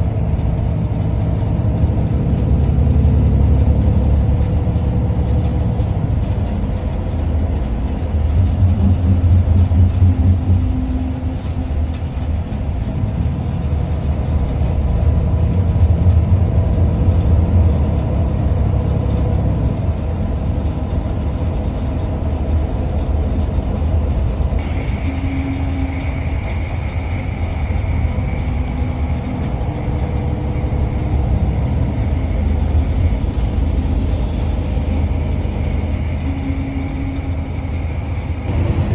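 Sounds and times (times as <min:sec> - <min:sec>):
vehicle ride rumble: 0:00.0 - 0:38.9
faint steady high tone: 0:24.6 - 0:33.3.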